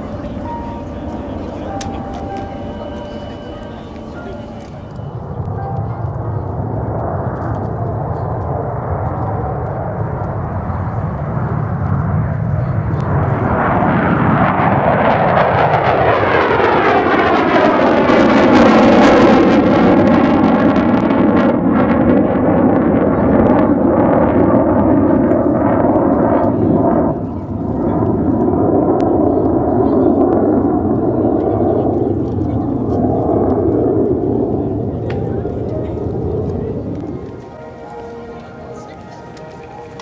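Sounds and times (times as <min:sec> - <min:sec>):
military aircraft passing: 0:00.0 - 0:40.0.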